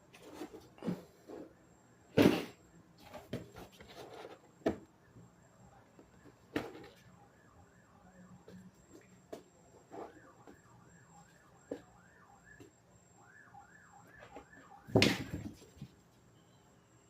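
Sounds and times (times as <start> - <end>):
warbling electronic alarm: 10.0 - 14.9.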